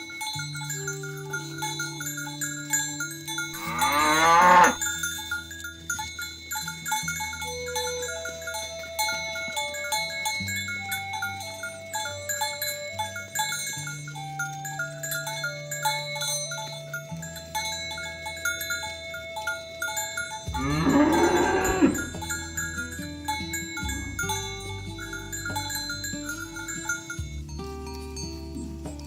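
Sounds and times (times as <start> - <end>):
background music with chimes: 0.0 - 29.0
cow mooing: 3.6 - 4.8, 20.5 - 22.1.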